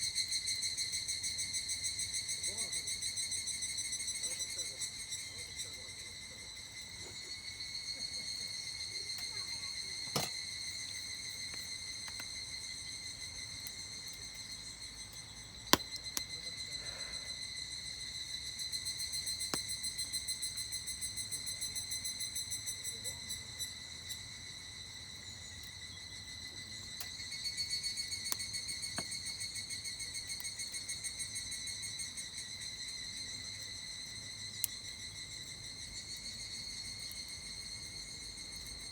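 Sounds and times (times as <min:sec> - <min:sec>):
cicadas chorus: 0:00.0 - 0:38.9
campfire crackling pops: 0:06.9 - 0:17.0, 0:19.2 - 0:20.2, 0:26.6 - 0:30.8.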